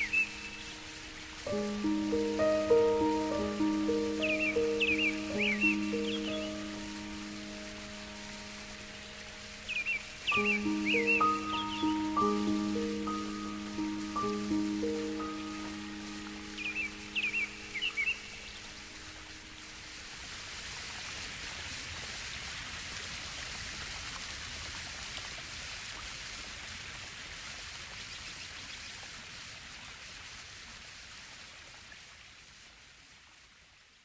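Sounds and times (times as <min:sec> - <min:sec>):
bird chirp: 0:00.0 - 0:00.8, 0:02.2 - 0:06.9, 0:09.7 - 0:18.7
stream water rushing: 0:00.0 - 0:33.0.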